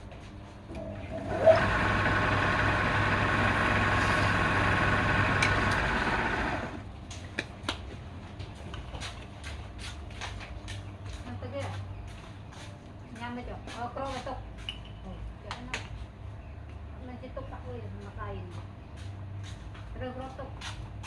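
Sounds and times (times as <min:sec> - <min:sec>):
motor whining: 0:00.7 - 0:06.8.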